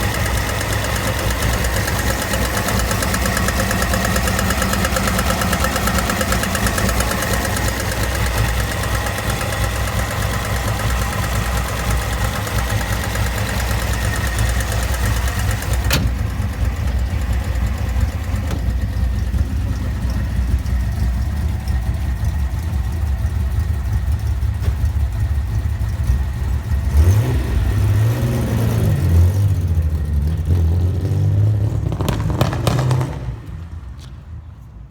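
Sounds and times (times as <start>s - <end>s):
engine revving: 0.0s - 18.7s, 26.0s - 33.6s
car engine running: 0.0s - 30.7s.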